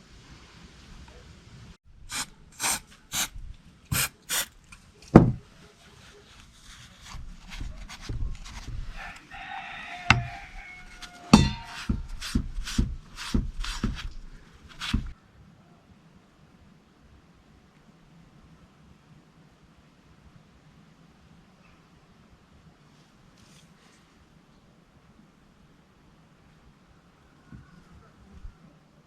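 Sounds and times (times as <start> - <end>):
scraping rub: 2.1 - 4.6, 5.4 - 15.2.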